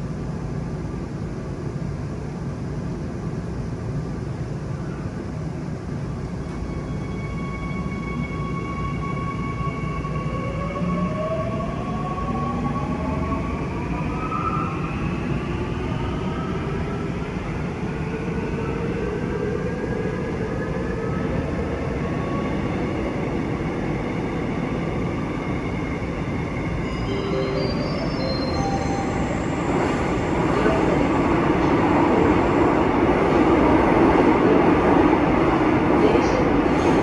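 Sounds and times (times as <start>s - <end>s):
electric train rumble and motor whine: 0.2s - 37.0s
stepped high tones: 26.8s - 31.7s.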